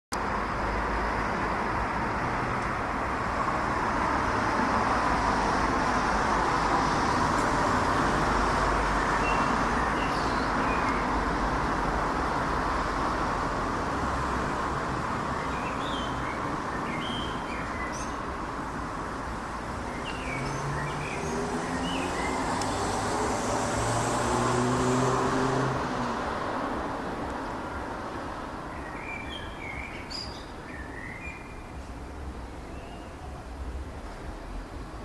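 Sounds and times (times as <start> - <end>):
small birds chirping: 9.1 - 11.1, 15.3 - 18.3, 19.6 - 22.8, 28.7 - 31.8.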